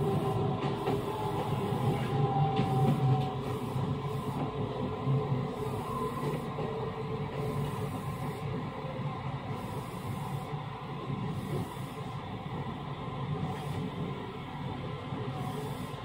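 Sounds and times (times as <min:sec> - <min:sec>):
train wheels rumbling: 0:00.0 - 0:09.0.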